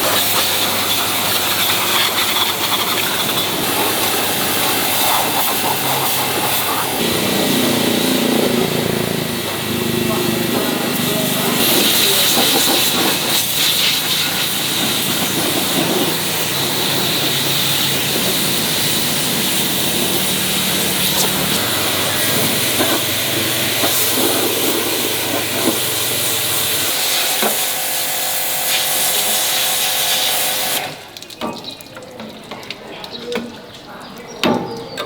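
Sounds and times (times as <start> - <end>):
high-pressure spray hissing: 0.0 - 31.1.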